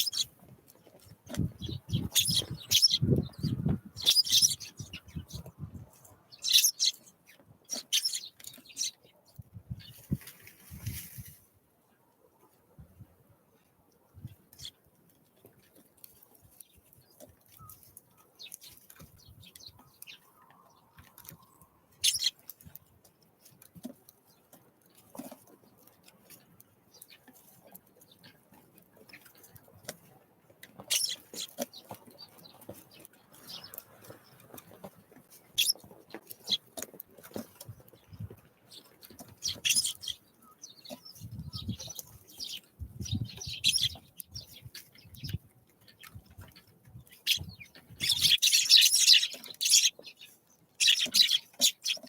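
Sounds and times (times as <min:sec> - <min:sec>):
birds pecking and tapping: 0:00.0 - 0:11.4, 0:13.9 - 0:52.0
short high bird chirps: 0:01.6 - 0:05.0, 0:06.4 - 0:07.0, 0:22.0 - 0:22.3, 0:47.3 - 0:50.0, 0:50.8 - 0:52.0.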